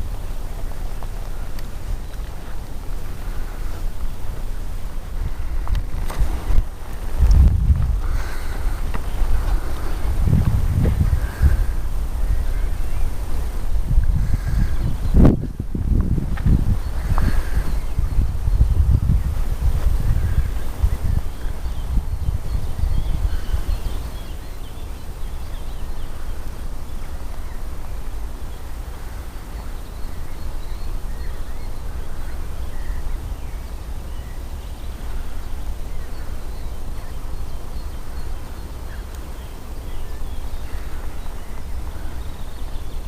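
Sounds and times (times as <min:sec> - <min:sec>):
wind rumbling on microphone: 0:00.0 - 0:43.0
faint bird chirps: 0:20.0 - 0:43.0.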